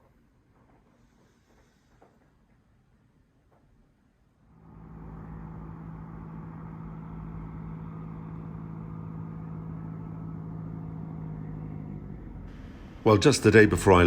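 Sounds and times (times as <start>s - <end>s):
engine running steadily: 4.5s - 14.0s.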